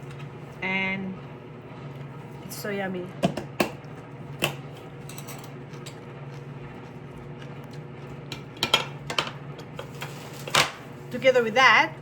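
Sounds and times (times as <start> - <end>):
utensils clinking against dishes: 4.8 - 6.0, 8.3 - 10.9.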